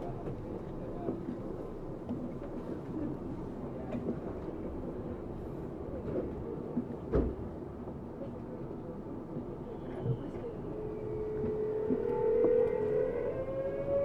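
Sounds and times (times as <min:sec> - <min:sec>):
train car rumble: 0:09.9 - 0:14.0.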